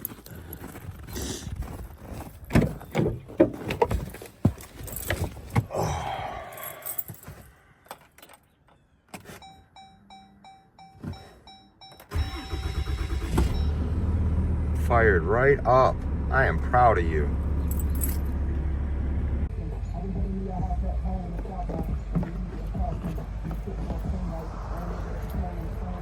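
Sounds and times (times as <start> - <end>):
keys jangling: 4.6 - 5.7, 6.3 - 8.5, 17.6 - 18.4
dashboard warning chime beeping: 9.3 - 13.8
truck engine cranking and starting: 11.9 - 26.0.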